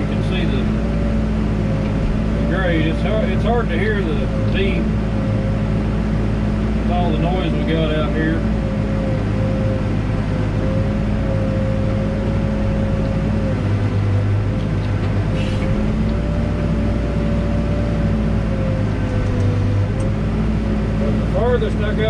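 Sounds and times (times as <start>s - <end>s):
diesel engine running: 0.0s - 22.0s
high whine: 0.0s - 22.0s.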